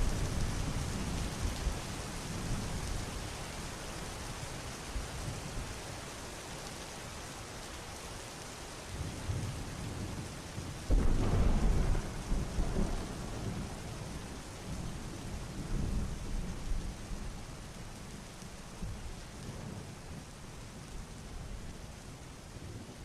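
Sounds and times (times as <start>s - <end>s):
rain falling: 0.0s - 23.0s
soft roll of thunder: 9.0s - 21.7s
thunder clap and rumble: 10.9s - 16.9s.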